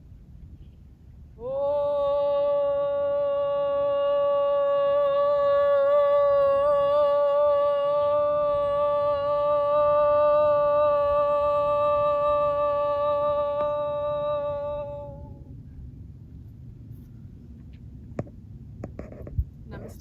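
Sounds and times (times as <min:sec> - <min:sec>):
woman chanting sustained note: 0:01.4 - 0:15.6.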